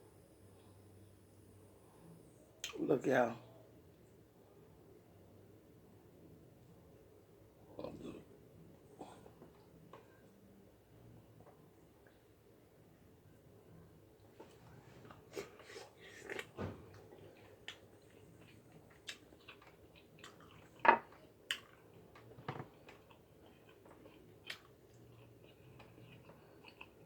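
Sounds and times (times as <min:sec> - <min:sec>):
person chewing: 0:15.1 - 0:27.0.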